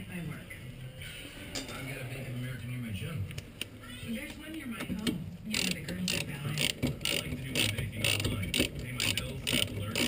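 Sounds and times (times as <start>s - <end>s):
socket ratchet clicking: 5.5s - 10.0s.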